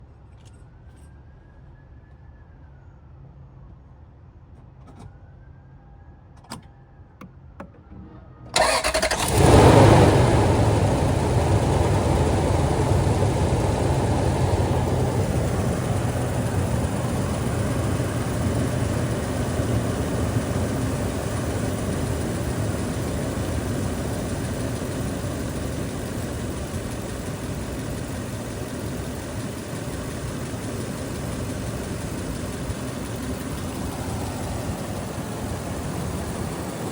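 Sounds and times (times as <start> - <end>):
car engine cranking and starting: 8.5 - 36.9
car engine fast idle: 8.6 - 36.9.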